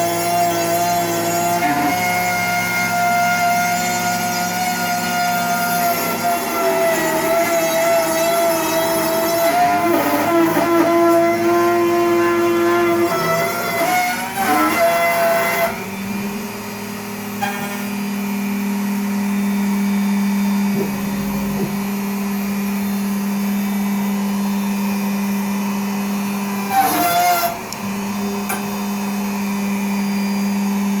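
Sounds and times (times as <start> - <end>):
router spindle hum and whine: 0.0 - 31.0
higher wavering whine: 20.7 - 22.3.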